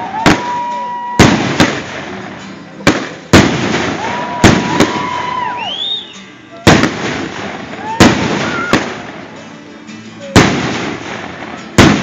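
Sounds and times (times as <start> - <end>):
fireworks rockets banging: 0.0 - 6.0, 6.6 - 9.4, 10.3 - 12.0.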